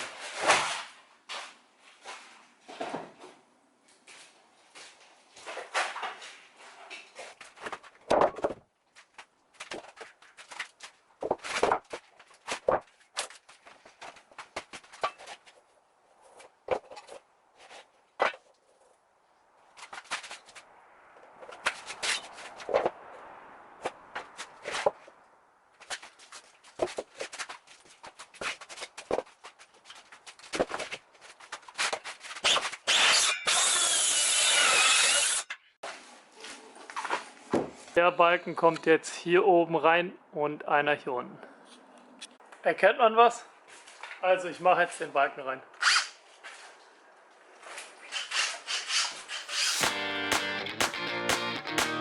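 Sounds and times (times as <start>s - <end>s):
power saw cutting wood: 32.9s - 35.5s, 49.4s - 52.0s.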